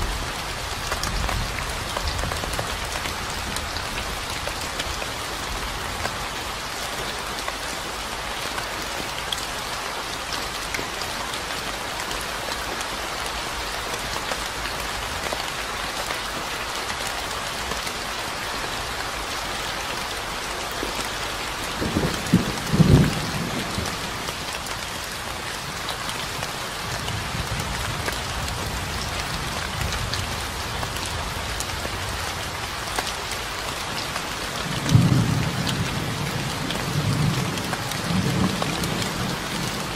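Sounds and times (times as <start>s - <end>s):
steady rain falling: 0.0s - 39.9s
thunder rumbling: 21.8s - 24.2s.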